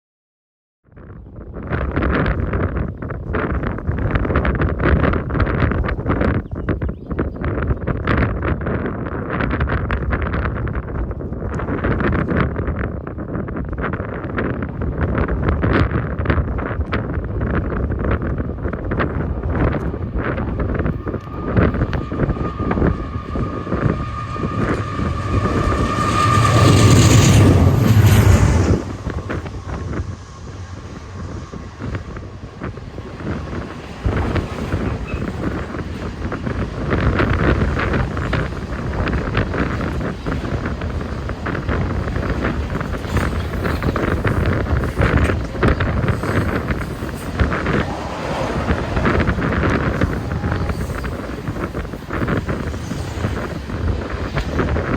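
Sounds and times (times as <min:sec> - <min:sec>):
wind buffeting microphone: 0:00.9 - 0:54.9
low rumble: 0:10.1 - 0:37.0, 0:41.6 - 0:54.1
train wheels clicking over rail joints: 0:31.8 - 0:54.9
steady high tone: 0:46.3 - 0:52.2.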